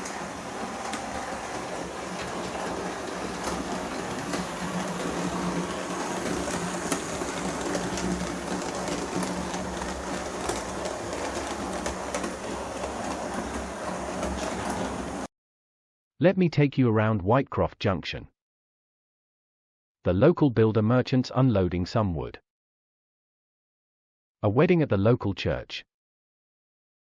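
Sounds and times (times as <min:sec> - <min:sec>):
model train clicks on track: 0:00.0 - 0:15.0
mechanical hum: 0:00.0 - 0:15.3
steam engine sound effects: 0:00.0 - 0:15.3.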